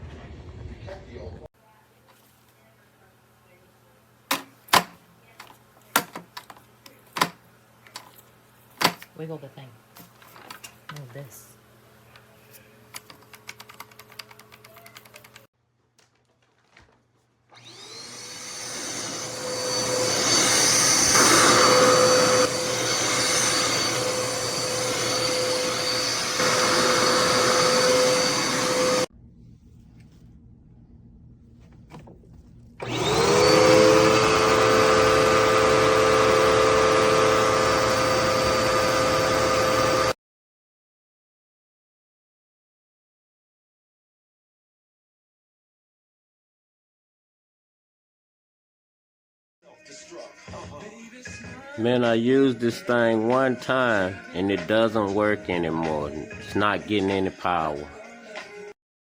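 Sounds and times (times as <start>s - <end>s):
vacuum cleaner motor whine: 17.5s - 29.1s, 32.8s - 40.2s.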